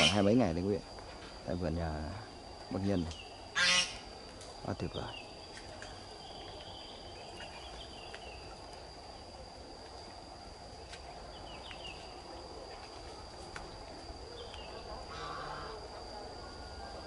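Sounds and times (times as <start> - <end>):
high-pitched whine: 0.0 - 17.0
low background hum: 0.0 - 17.0
bird chirps: 4.9 - 8.6.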